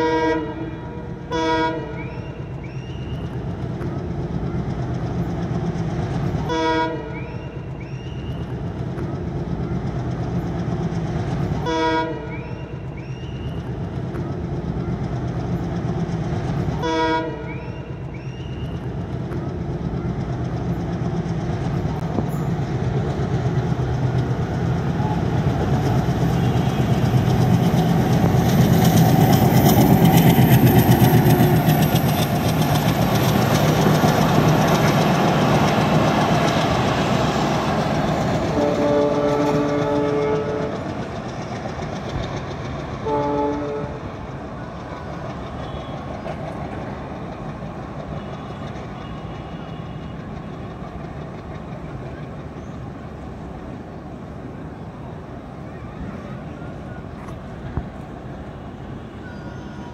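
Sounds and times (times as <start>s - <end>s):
train horn: 0.0s - 2.6s, 6.4s - 7.7s, 11.6s - 12.9s, 16.8s - 18.0s, 26.2s - 27.3s, 38.5s - 41.0s, 43.0s - 44.1s, 45.6s - 46.1s, 48.2s - 50.4s
diesel locomotive engine running: 0.0s - 59.9s
train wheel clatter: 2.0s - 54.5s.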